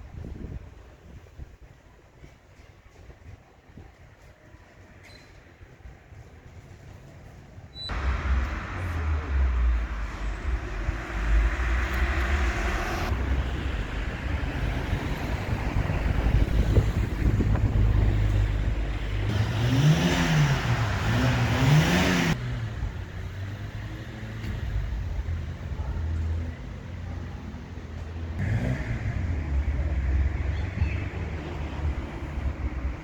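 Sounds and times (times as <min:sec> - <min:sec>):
low traffic rumble: 0:00.0 - 0:33.0
vehicle engine revving: 0:07.9 - 0:24.8, 0:28.4 - 0:33.0.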